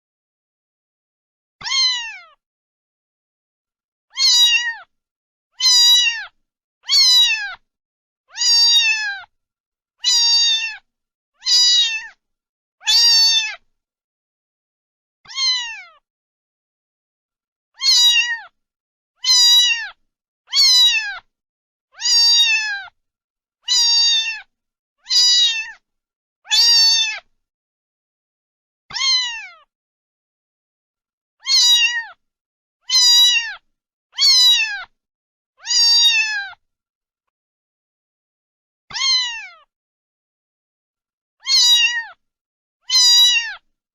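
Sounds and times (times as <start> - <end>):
cat meowing: 1.6 - 2.4, 4.1 - 4.9, 5.6 - 7.6, 8.3 - 9.3, 10.0 - 12.2, 12.8 - 13.6, 15.3 - 16.0, 17.8 - 18.6, 19.2 - 21.3, 22.0 - 23.0, 23.6 - 25.8, 26.5 - 27.3, 28.9 - 29.7, 31.4 - 32.2, 32.8 - 34.9, 35.6 - 36.6, 38.9 - 39.7, 41.4 - 42.2, 42.8 - 43.7.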